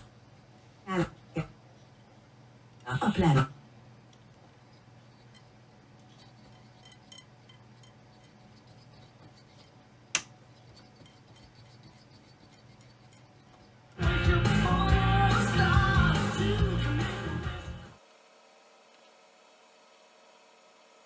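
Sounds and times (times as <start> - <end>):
rock music with singing: 14.0 - 18.0.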